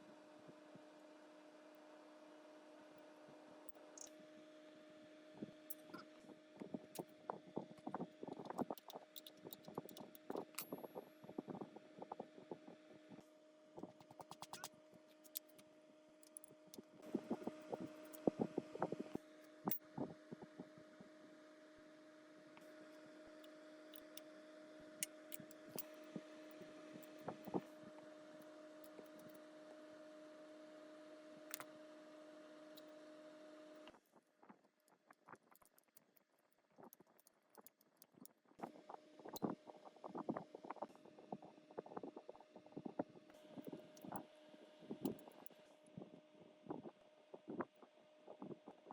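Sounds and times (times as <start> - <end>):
small parts clicking: 8.4 - 10.8, 13.9 - 15.6, 16.2 - 16.8, 23.9 - 24.2.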